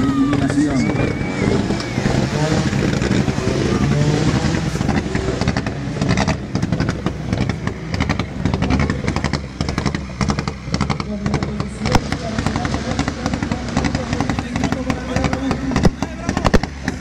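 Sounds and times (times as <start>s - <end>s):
people talking: 0.0s - 4.9s, 10.9s - 17.0s
rally car engine idling: 0.0s - 17.0s
exhaust crackling pops: 0.3s - 17.0s.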